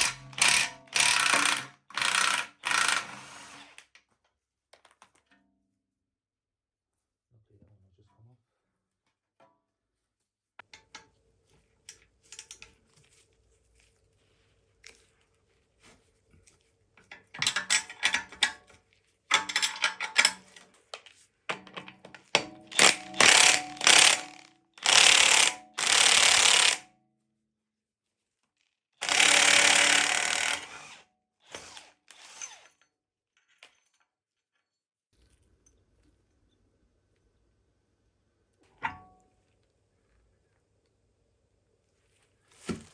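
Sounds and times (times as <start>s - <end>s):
hand tools tapping on metal: 17.0s - 18.7s, 19.3s - 20.7s
power tool bursts: 22.7s - 26.8s, 29.0s - 32.6s.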